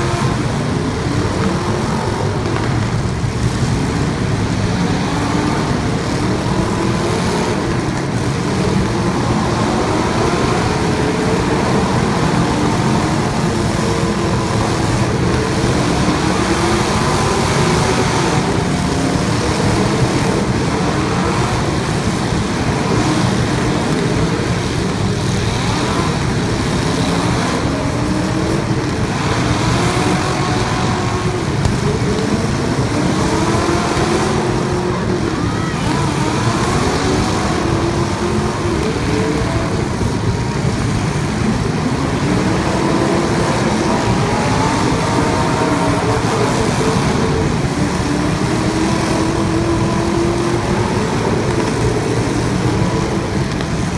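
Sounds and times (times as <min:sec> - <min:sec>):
race car engines revving: 0:00.0 - 0:53.9.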